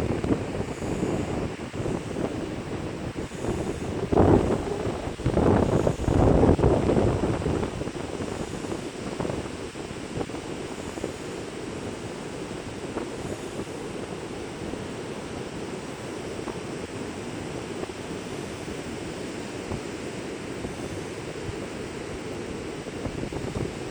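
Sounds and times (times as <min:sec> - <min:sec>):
ocean surf washing: 0:00.0 - 0:23.9
wind buffeting microphone: 0:00.0 - 0:23.9.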